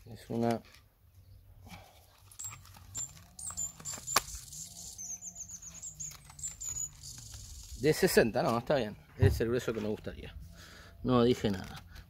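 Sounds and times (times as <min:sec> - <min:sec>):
birds chirping: 0:02.3 - 0:09.2
sharp clicks: 0:02.4 - 0:04.7.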